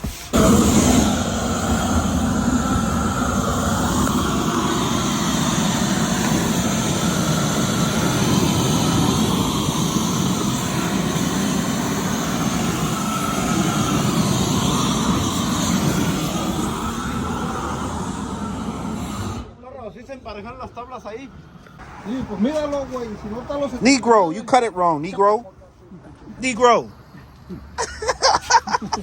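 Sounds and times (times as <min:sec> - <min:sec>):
power tool motor running: 0:00.4 - 0:19.5.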